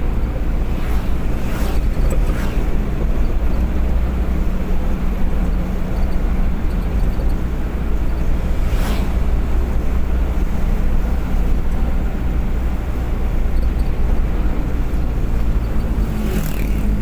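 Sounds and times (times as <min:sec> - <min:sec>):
vehicle rumble at speed: 0:00.0 - 0:17.0.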